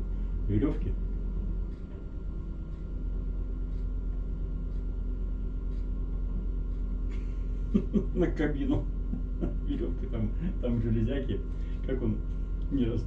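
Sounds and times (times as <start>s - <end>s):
truck engine rumbling: 7.1s - 13.0s.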